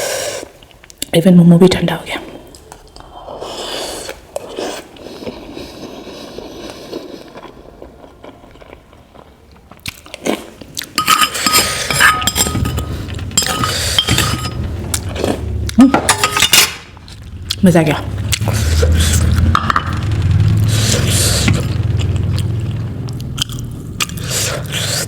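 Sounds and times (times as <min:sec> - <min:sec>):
chewing: 0:02.5 - 0:12.0, 0:20.7 - 0:25.0
cutlery clinking on dish: 0:11.0 - 0:14.6.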